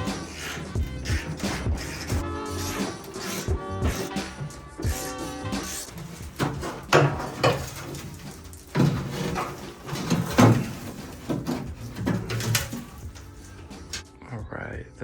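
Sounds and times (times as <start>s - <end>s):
loud thuds: 0.0s - 14.0s
hard objects knocking and clunking: 0.8s - 14.0s.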